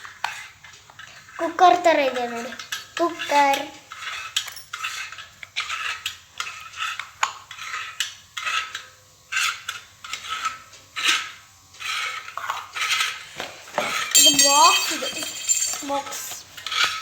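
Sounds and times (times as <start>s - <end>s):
metal parts clinking and scraping: 4.1s - 5.0s, 14.1s - 16.4s.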